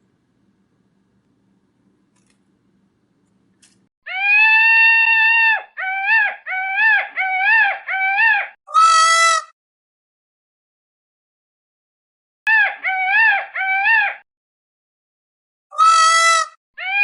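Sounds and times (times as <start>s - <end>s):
high-pitched animal cries: 4.1s - 9.5s, 12.5s - 14.2s, 15.7s - 17.0s.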